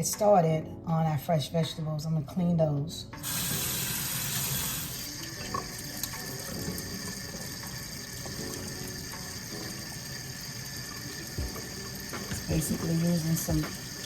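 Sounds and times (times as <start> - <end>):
faucet running water into sink: 3.2 - 14.0.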